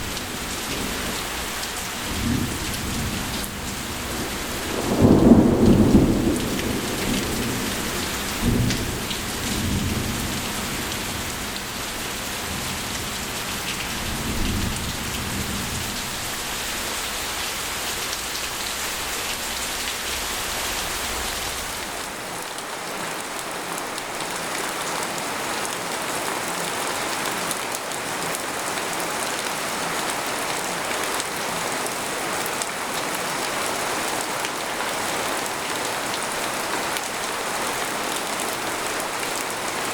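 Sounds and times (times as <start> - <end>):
thunder rumbling: 0.0 - 11.4
rain falling on a tent: 0.0 - 39.9.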